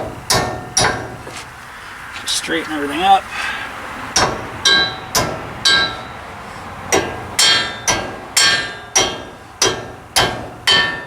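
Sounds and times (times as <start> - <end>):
hammer striking steel: 0.3 - 1.2, 4.2 - 6.1, 6.9 - 11.0.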